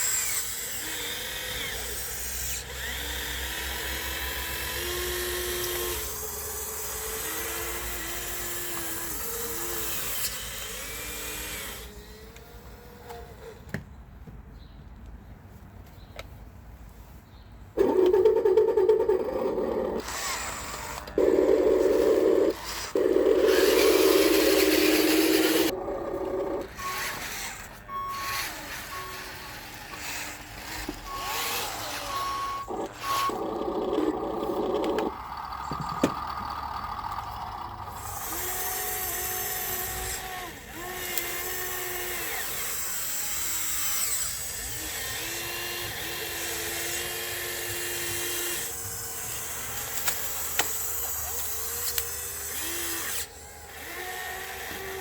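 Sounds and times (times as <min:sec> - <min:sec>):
small electric motors whining: 0:00.0 - 0:13.8, 0:17.8 - 0:55.0
pulsed high beep: 0:31.1 - 0:34.6.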